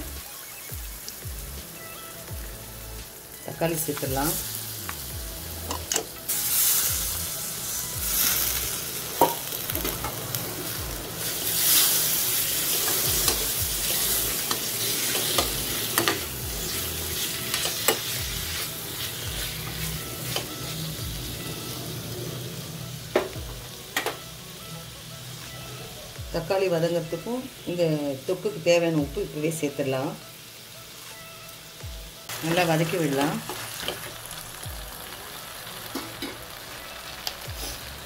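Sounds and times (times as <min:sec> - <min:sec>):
tomatoes sizzling in oil: 0:00.0 - 0:38.0.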